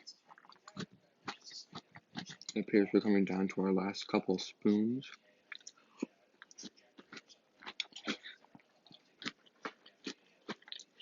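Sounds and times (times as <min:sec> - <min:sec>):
chewing crunchy cereal: 0:00.0 - 0:02.7, 0:05.0 - 0:11.0.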